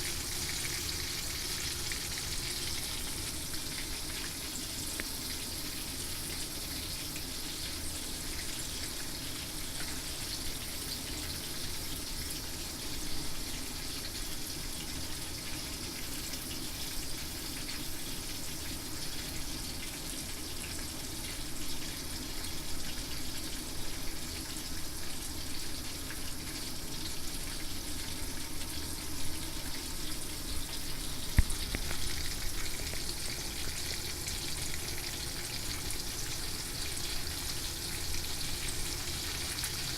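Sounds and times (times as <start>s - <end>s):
fish sizzling in hot oil: 0.0s - 39.9s.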